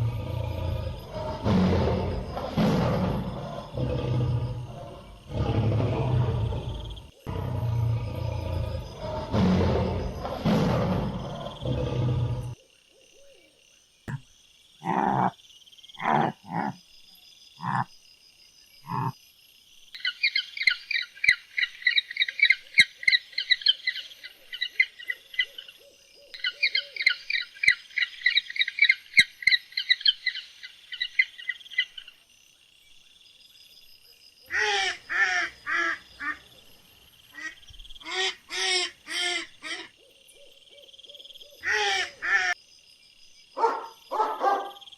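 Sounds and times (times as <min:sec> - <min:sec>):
loud harsh animal calls: 0:14.8 - 0:15.4, 0:16.0 - 0:16.8, 0:17.6 - 0:17.9, 0:18.8 - 0:19.2, 0:34.5 - 0:36.5, 0:37.3 - 0:40.0, 0:41.6 - 0:42.6
low hoots: 0:17.6 - 0:17.9, 0:18.8 - 0:19.2.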